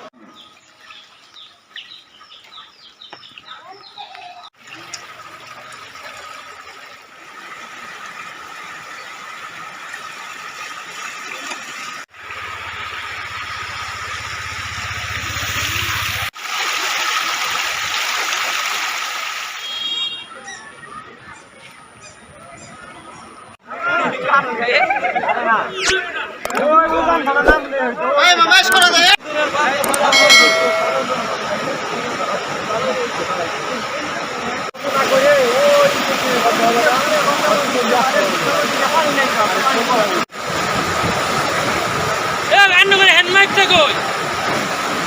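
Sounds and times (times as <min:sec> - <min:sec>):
flood water rushing: 0:04.6 - 0:19.8, 0:29.3 - 0:45.0.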